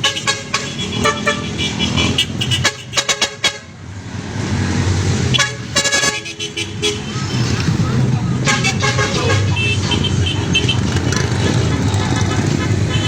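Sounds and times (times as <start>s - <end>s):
horn toots: 0.0s - 3.7s, 5.3s - 13.0s
motorcycle engines running: 6.5s - 13.0s.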